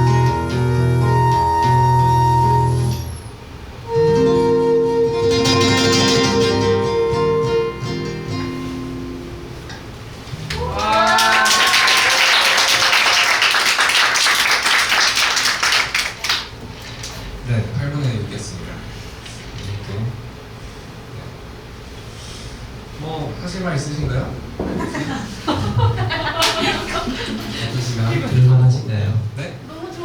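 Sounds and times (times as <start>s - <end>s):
seven-string guitar: 0.0s - 3.1s, 3.8s - 9.8s
flute: 0.0s - 8.1s
audience applause: 10.4s - 16.6s
audience cheering: 10.4s - 16.6s.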